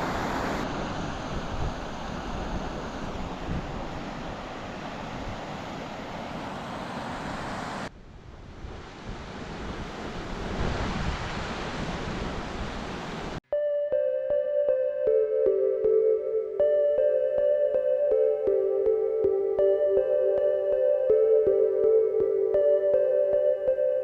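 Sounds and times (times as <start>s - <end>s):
soft piano music: 13.5s - 24.0s.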